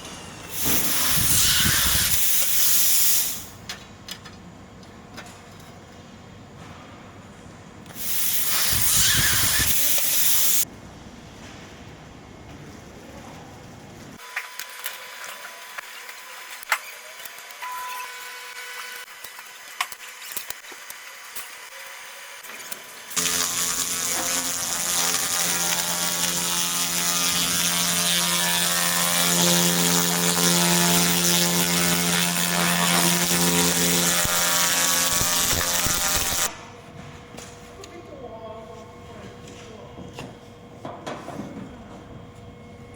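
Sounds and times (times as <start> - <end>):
laser machine buzzing hiss: 0.5 - 3.5, 7.9 - 10.6, 23.1 - 36.6.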